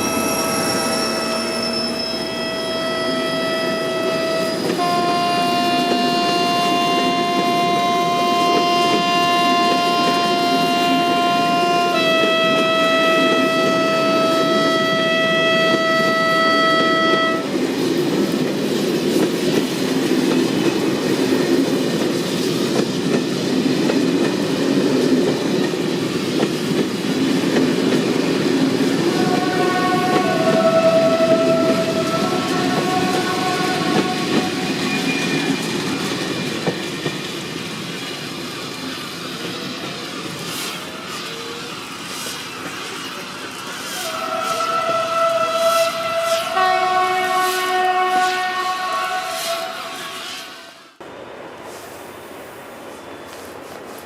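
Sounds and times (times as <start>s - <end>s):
train horn: 0.0s - 17.6s, 28.8s - 35.8s, 43.8s - 51.0s
train rumbling on rails: 0.0s - 54.0s.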